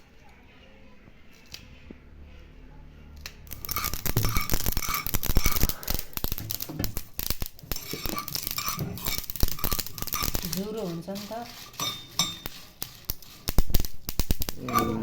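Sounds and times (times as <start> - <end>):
dishes and utensils clattering: 3.5 - 13.6, 14.5 - 15.0.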